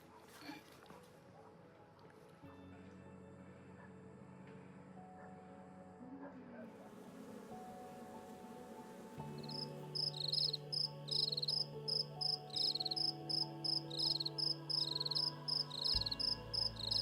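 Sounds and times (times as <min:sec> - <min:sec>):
soft slow music: 0:00.0 - 0:17.0
crickets chirping: 0:09.4 - 0:17.0.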